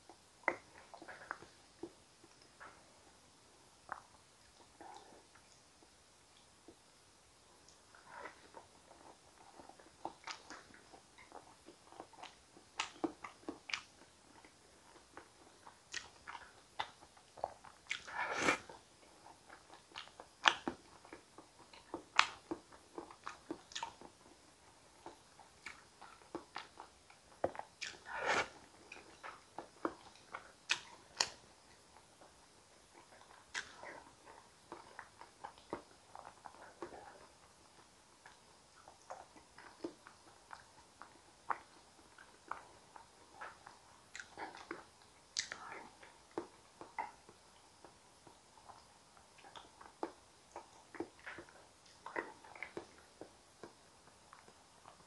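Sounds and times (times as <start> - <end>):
wet chewing with mouth clicks: 0.0 - 2.8, 7.6 - 55.0.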